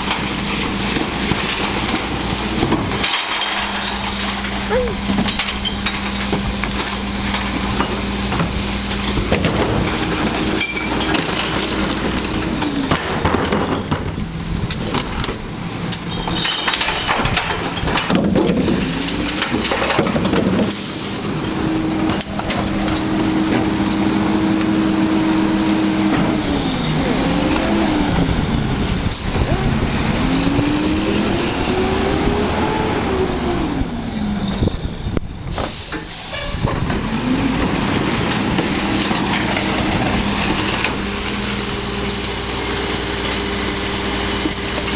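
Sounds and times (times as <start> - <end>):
knocks and clatter: 0.0 - 24.1
diesel truck engine running: 0.0 - 44.9.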